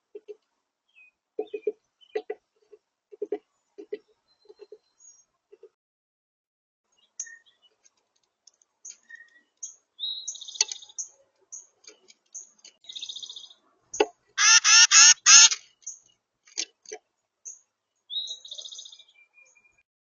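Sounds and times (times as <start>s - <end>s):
songbirds chirping: 0.0s - 5.8s, 6.9s - 14.3s, 15.6s - 19.8s
buzzy bird trills: 14.4s - 15.6s
harsh bird calls: 14.4s - 15.6s.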